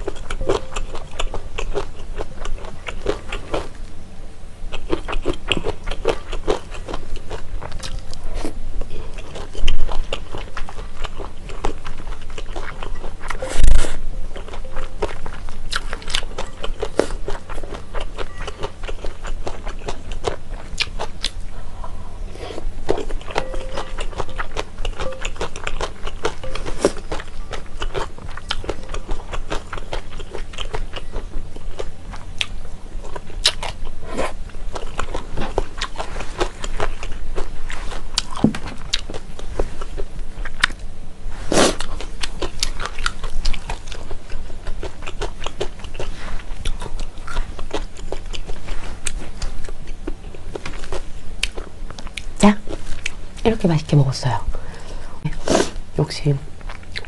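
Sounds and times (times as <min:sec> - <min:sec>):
person chewing noodles: 0:00.0 - 0:03.8, 0:04.7 - 0:21.7, 0:22.3 - 0:40.9, 0:41.5 - 0:53.4, 0:56.6 - 0:57.0
steady low hum: 0:00.0 - 0:57.0.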